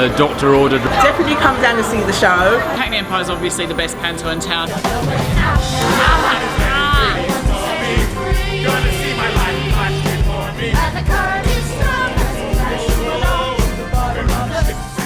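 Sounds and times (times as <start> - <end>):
upbeat music with drum beat: 0.0 - 15.0
person singing: 4.8 - 15.0.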